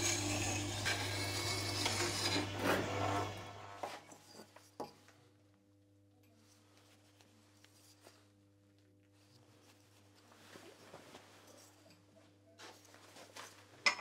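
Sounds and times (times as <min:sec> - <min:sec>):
wood lathe humming: 0:00.0 - 0:03.8.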